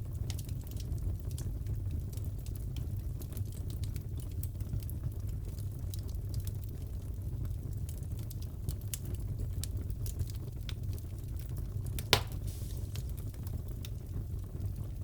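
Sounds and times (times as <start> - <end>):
low fire rumble: 0.0 - 15.0
wood fire crackling: 0.0 - 15.0
loud pop of fire: 12.0 - 13.4.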